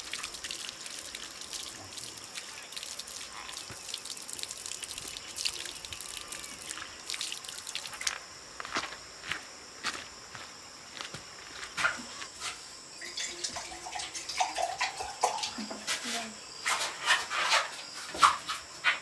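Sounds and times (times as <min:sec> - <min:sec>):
water trickling and dripping: 0:00.0 - 0:08.8, 0:12.9 - 0:16.4.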